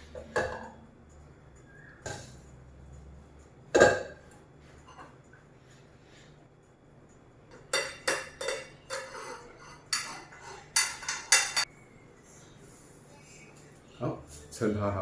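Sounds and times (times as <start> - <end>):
metal utensil scraping a pan: 7.6 - 11.7.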